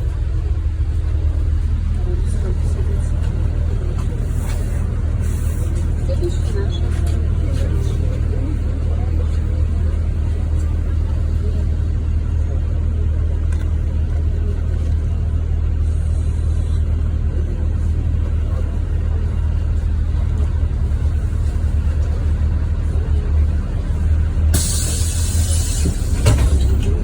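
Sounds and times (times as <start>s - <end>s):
bus engine and road rumble: 0.0s - 27.0s
compressed air hiss: 24.6s - 26.8s.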